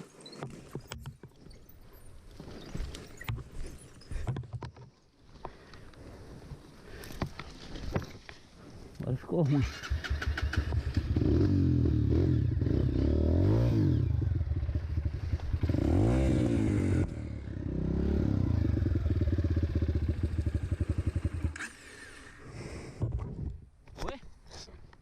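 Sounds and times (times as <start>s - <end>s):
dirt bike engine revving: 9.5s - 22.4s.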